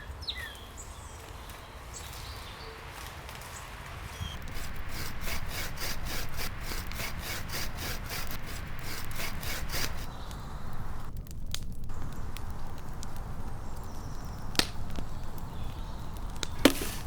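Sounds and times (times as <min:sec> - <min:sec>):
hand saw cutting wood: 0:04.1 - 0:11.1, 0:16.3 - 0:17.0.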